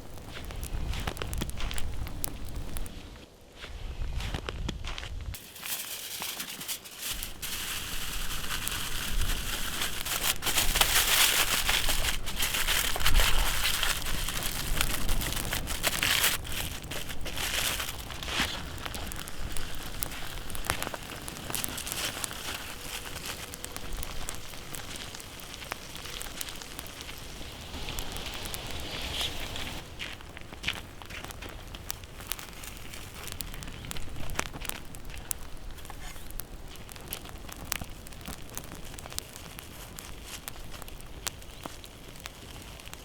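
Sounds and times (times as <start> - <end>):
campfire crackling: 0.0 - 4.6, 5.2 - 43.0
ribs sizzling on a grill: 5.4 - 30.5.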